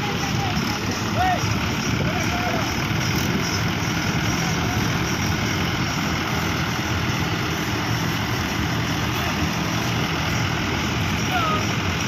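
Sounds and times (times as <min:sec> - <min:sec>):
tractor diesel engines running: 0:00.0 - 0:12.0.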